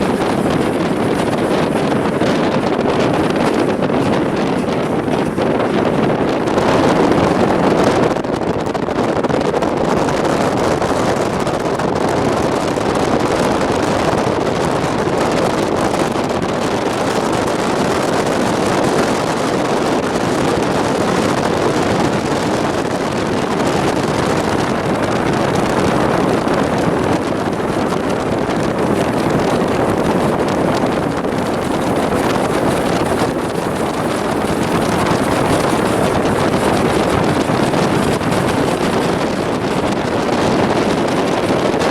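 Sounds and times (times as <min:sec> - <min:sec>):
moving train running noise: 0:00.0 - 0:41.9
wind rushing on microphone: 0:00.0 - 0:41.9.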